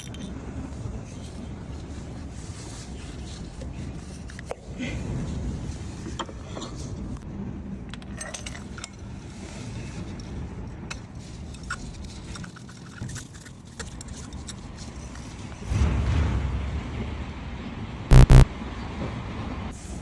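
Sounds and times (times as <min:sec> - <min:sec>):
low rumble: 0:15.6 - 0:18.6.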